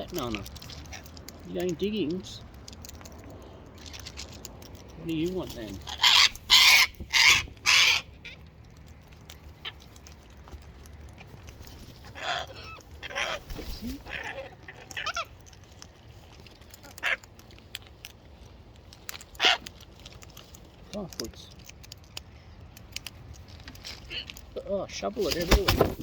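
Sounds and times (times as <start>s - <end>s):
cockatoos squawking: 5.6s - 8.4s, 12.0s - 15.4s, 19.4s - 19.7s.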